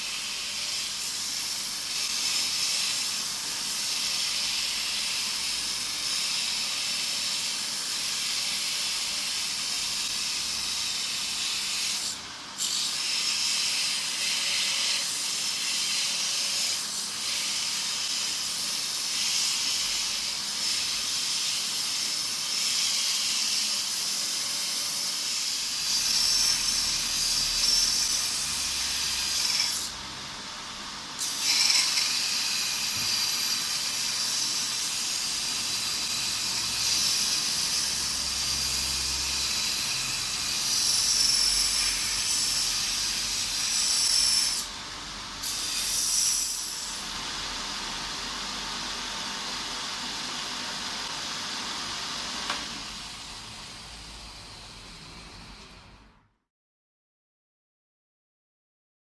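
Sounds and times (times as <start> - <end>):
belt grinder grinding metal: 0.0 - 30.0, 31.2 - 44.8.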